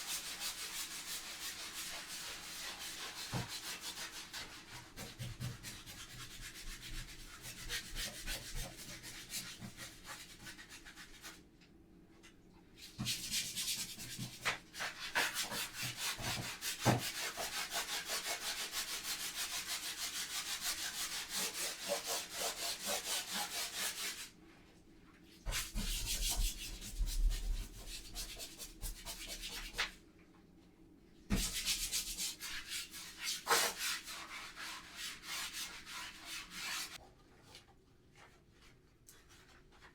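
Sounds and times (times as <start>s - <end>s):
scrubbing strokes on surface: 31.3s - 37.0s.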